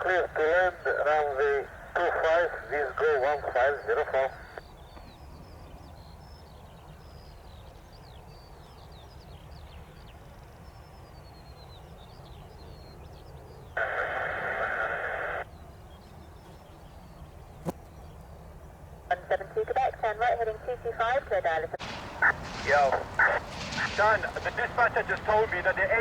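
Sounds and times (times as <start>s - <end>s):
radio static hiss: 0.0s - 4.7s, 13.8s - 15.5s, 19.1s - 26.0s
small birds chirping: 0.5s - 20.5s, 21.8s - 26.0s
steady low rumble: 20.6s - 26.0s.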